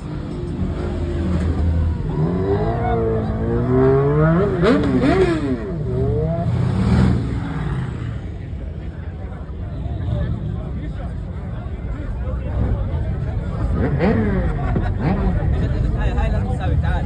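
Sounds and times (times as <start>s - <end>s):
car engine revving hard: 0.8s - 8.0s.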